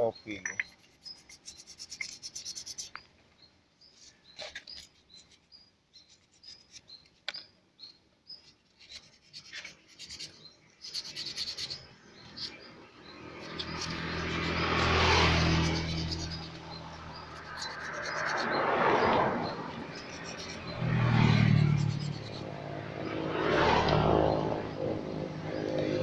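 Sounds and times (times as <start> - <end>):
metal parts scraping and clicking: 0.4 - 3.0, 8.8 - 12.6, 13.4 - 18.4
high bird chirps: 3.8 - 23.2.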